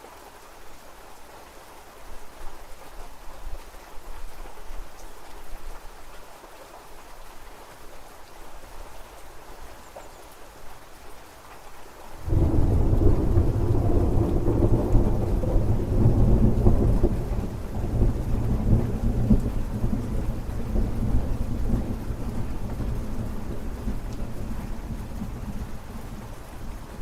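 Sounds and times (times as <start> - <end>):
steady rain: 0.0 - 27.0
low rolling thunder: 12.2 - 27.0.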